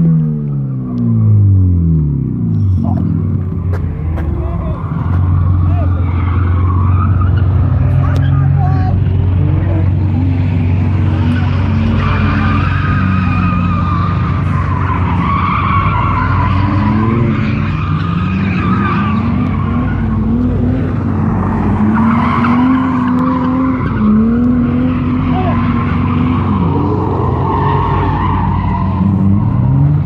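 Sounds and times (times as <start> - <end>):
car engine at high revs: 0.0 - 30.0
tyre squeal: 11.2 - 20.3.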